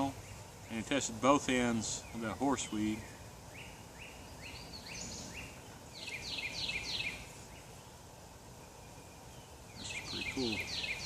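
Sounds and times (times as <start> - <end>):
outdoor background hiss: 0.0 - 11.0
bird whistling notes: 2.1 - 7.7, 8.7 - 11.0.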